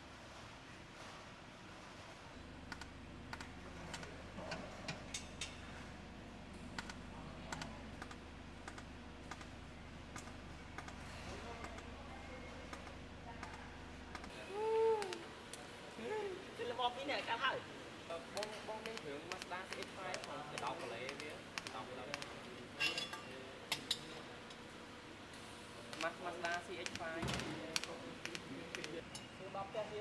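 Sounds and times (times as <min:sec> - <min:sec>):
light clicks and taps: 0:18.3 - 0:22.6, 0:25.9 - 0:29.0
steady low hum: 0:25.1 - 0:29.0.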